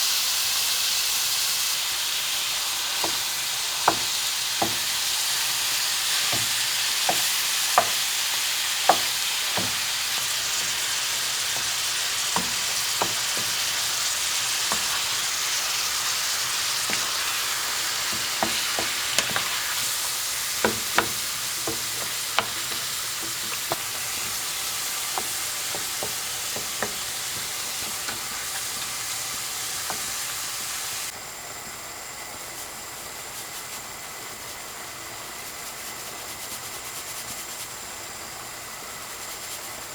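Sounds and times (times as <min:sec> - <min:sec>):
food sizzling in oil: 0:00.0 - 0:39.9
utensil clicking against pan: 0:02.9 - 0:30.9.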